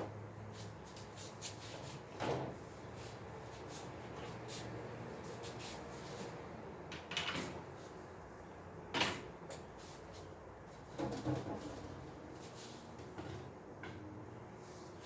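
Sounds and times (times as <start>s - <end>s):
knocks and clatter of crib parts: 2.1s - 2.6s, 6.9s - 7.6s, 8.9s - 9.7s, 10.9s - 12.0s.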